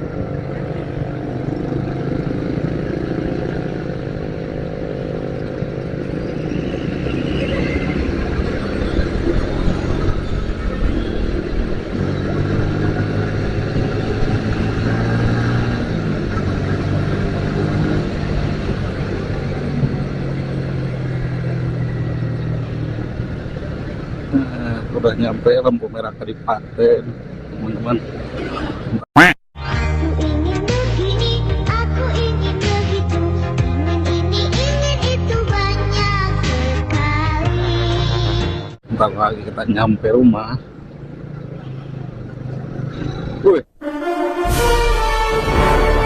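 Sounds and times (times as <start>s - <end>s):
motorcycle engine running: 0.0s - 25.8s, 39.0s - 43.7s.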